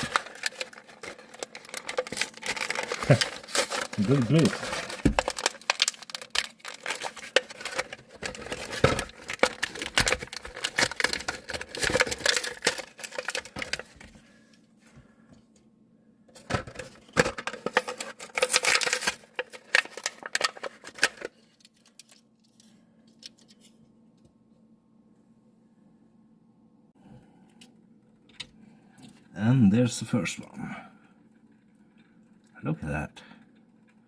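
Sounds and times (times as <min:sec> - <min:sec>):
plastic packaging crackling: 0:00.0 - 0:14.1, 0:16.4 - 0:22.6.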